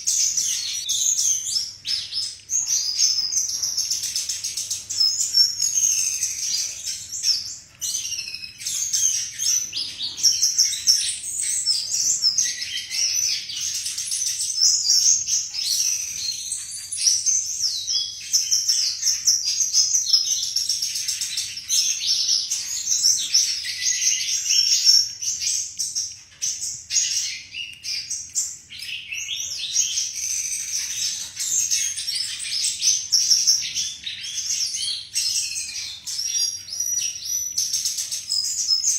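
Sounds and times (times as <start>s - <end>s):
bird singing whistled phrases: 0.0s - 20.4s.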